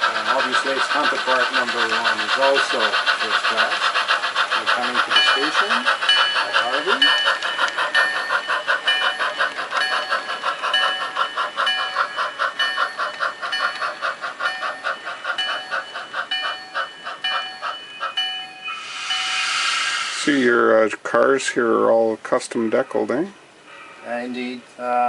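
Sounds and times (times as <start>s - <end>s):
locomotive bell ringing: 4.7s - 19.6s, 22.3s - 24.4s.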